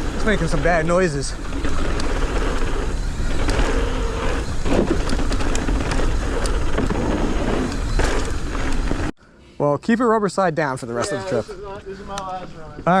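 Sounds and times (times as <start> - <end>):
bike clicking and rattling: 0.0 - 9.1
bike tyres rumbling on dirt: 0.0 - 9.1.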